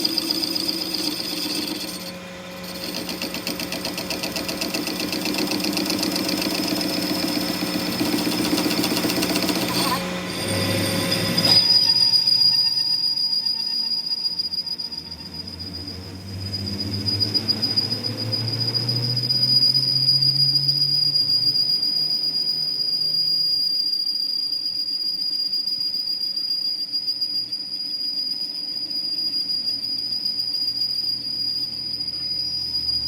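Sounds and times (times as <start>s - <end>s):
machine low hum: 0.0s - 12.9s
machine high-pitched whine: 0.0s - 33.0s.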